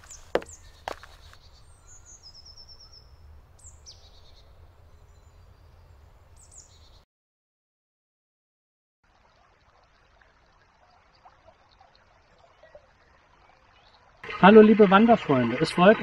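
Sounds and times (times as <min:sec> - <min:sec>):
songbirds singing: 0:00.0 - 0:07.0, 0:11.1 - 0:14.2.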